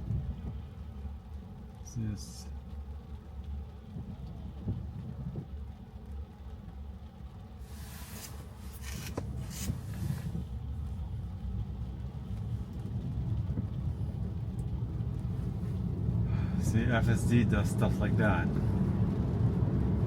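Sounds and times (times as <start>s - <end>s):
tyre and road rumble in car: 0.0s - 20.0s
short swishes of hiss: 7.6s - 10.4s.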